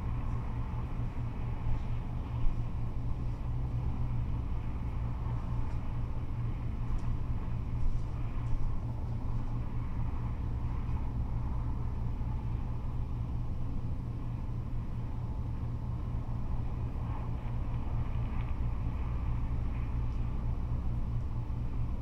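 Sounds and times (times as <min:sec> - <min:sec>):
freeway traffic rumble: 0:00.0 - 0:22.0.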